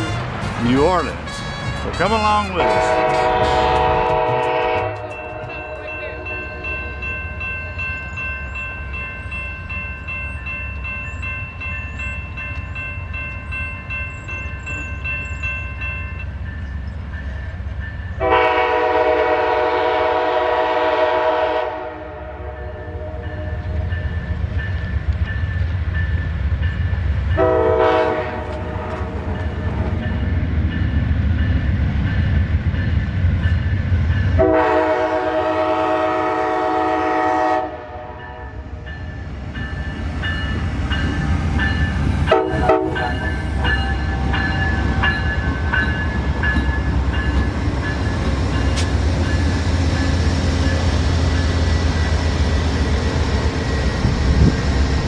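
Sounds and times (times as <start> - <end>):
train horn blasts: 0.0 - 7.1, 18.2 - 23.9, 27.4 - 29.2, 34.4 - 38.6, 42.3 - 44.5
diesel locomotive rumbling: 0.0 - 55.0.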